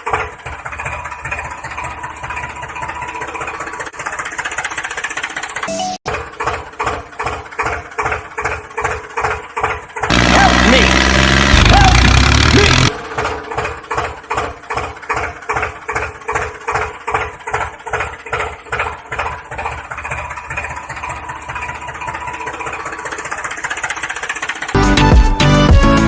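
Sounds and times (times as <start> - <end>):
tractor engine chugging: 0.0 - 25.9
loud burst with sliding tones: 10.1 - 13.0.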